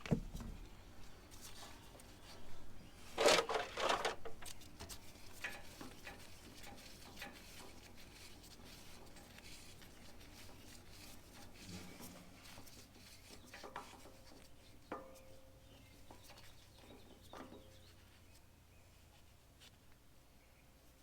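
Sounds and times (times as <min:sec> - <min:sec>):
tools scraping and clattering: 0:03.1 - 0:04.6
faint knocks and rubs: 0:03.1 - 0:19.8.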